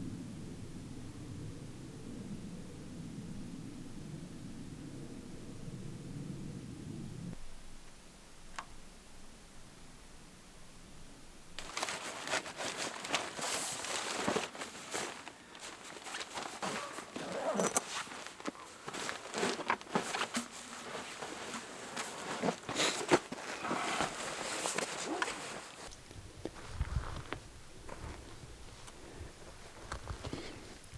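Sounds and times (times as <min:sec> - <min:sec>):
crunching and rustling: 0:11.6 - 0:30.9.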